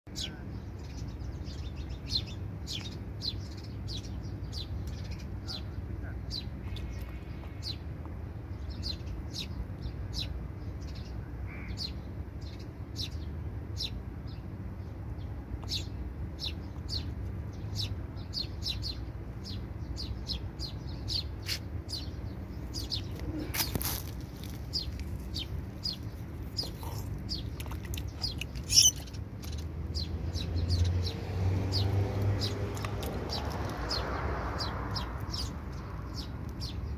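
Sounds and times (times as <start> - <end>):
bird chirping: 0.1 - 36.9
low steady rumble: 4.2 - 30.4.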